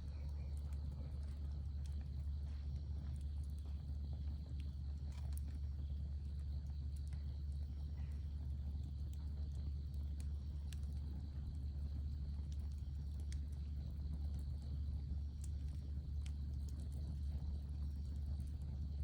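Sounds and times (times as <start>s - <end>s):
campfire crackling and popping: 0.0s - 19.0s
low fire rumble: 0.0s - 19.0s.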